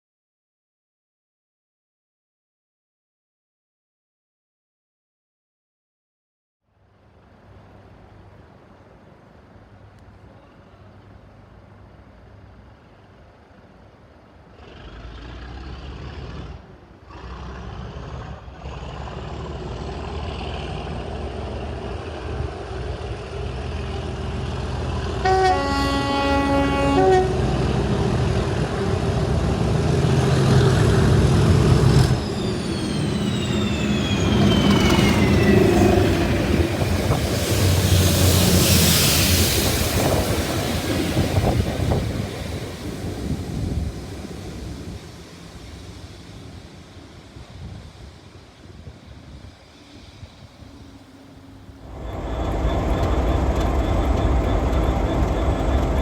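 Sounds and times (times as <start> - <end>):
diesel locomotive engine: 6.9 - 56.0
train horn: 25.1 - 28.0.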